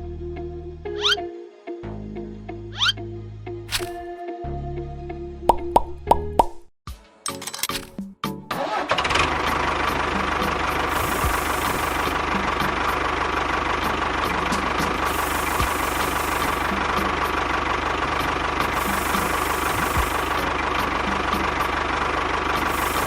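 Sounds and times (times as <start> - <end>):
engine running steadily: 9.0 - 23.0
constant whine: 10.6 - 23.0.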